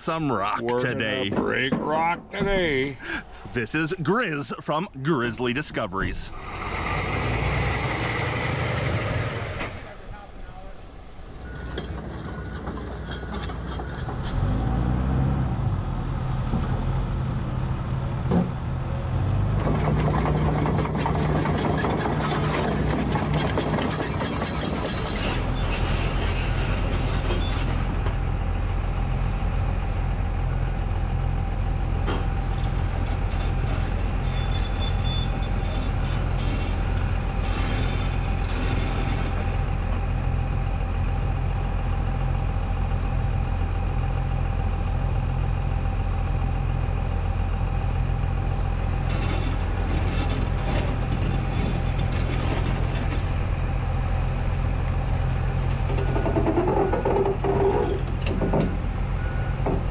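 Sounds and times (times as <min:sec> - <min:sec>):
excavator diesel engine running: 0:00.0 - 0:59.9
machinery clanking on rock: 0:11.5 - 0:14.7, 0:19.5 - 0:28.3, 0:49.0 - 0:59.9.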